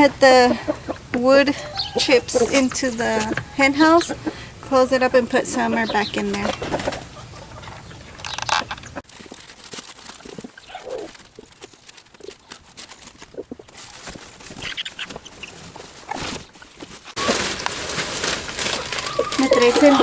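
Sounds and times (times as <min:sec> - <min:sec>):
hens clucking: 0:00.0 - 0:09.0, 0:10.1 - 0:20.0
rustles and knocks: 0:06.4 - 0:20.0.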